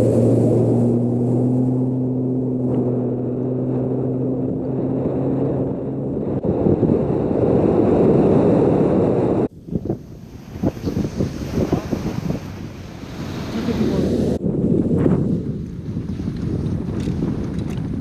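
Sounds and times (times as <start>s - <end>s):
outboard motor running: 0.0s - 14.4s
rushing wind and water: 0.0s - 18.0s.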